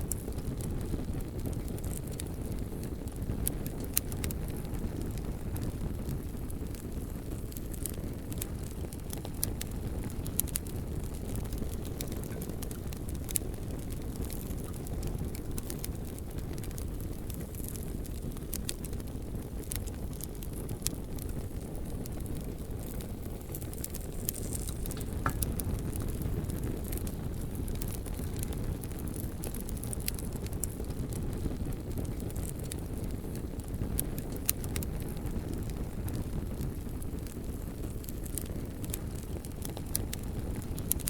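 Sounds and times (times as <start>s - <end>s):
bonfire crackling and popping: 0.0s - 41.0s.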